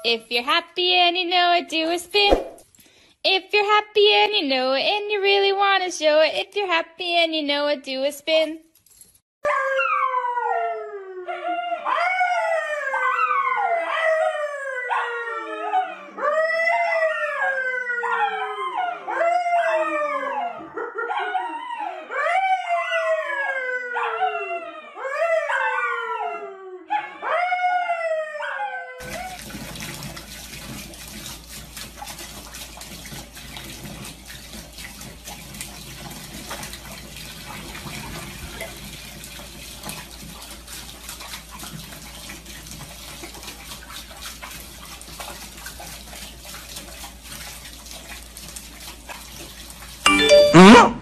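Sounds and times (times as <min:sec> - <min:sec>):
dog howling: 0:09.5 - 0:29.4
water running into bathtub: 0:29.0 - 0:50.5.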